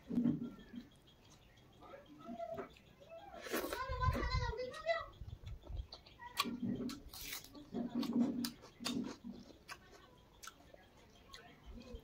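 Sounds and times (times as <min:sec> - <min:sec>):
person chewing: 0:02.7 - 0:03.8, 0:05.4 - 0:11.5.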